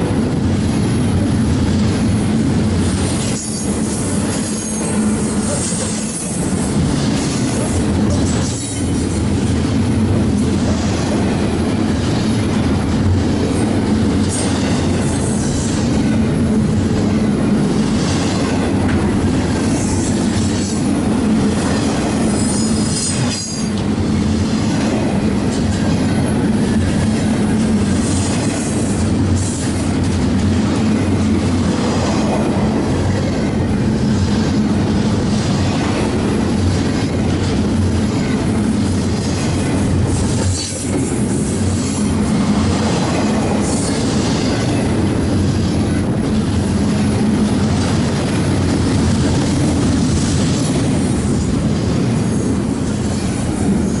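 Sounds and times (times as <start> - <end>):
freight train wheels rumbling: 0.0 - 54.0
train wheel squeal: 2.9 - 9.1, 21.8 - 23.8, 39.2 - 44.9.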